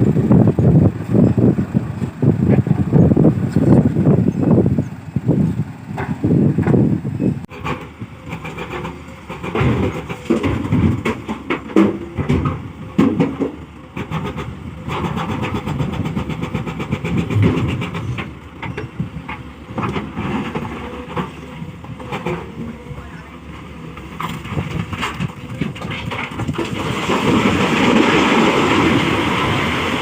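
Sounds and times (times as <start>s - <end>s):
excavator diesel engine: 0.0s - 30.0s
soil and stones clattering: 23.6s - 30.0s.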